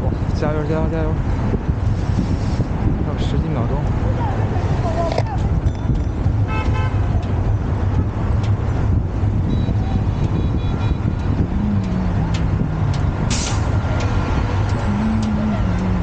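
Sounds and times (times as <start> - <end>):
traffic engine rumble: 0.0 - 16.0
short sharp hiss: 13.3 - 13.7.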